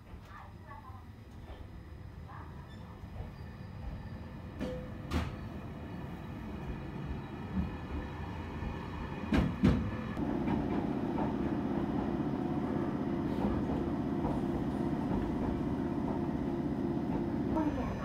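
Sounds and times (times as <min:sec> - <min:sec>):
electric train rumble: 0:03.1 - 0:18.0
steady train drone: 0:03.2 - 0:18.0.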